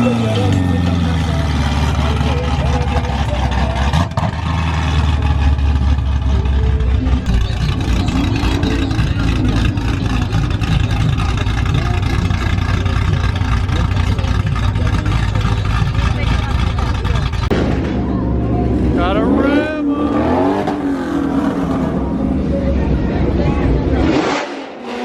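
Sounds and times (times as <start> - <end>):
car engine running: 0.0 - 24.3
crowd noise: 0.0 - 25.0.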